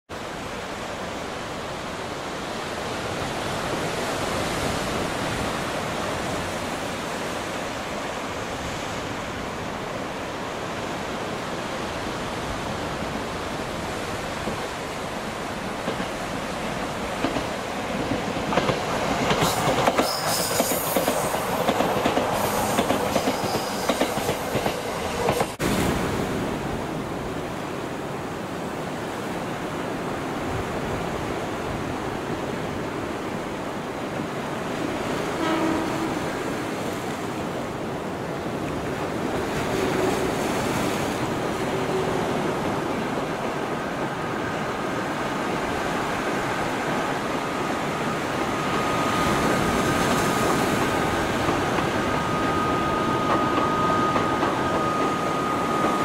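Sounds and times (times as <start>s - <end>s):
surf washing: 0.1s - 56.0s
electric train running: 47.7s - 56.0s.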